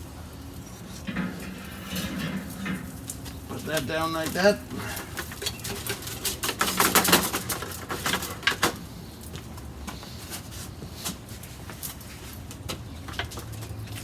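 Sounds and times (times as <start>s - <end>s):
grilling tools clicking and knocking: 1.0s - 8.8s.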